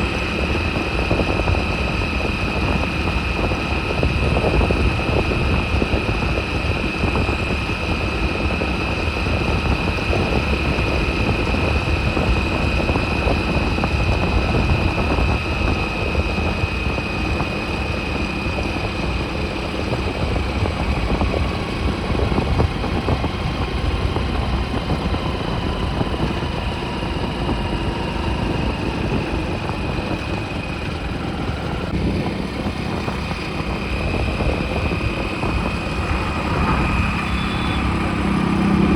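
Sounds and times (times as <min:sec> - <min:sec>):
motorcycle engine rumble: 0:00.0 - 0:38.9
thin high whine: 0:34.9 - 0:38.4.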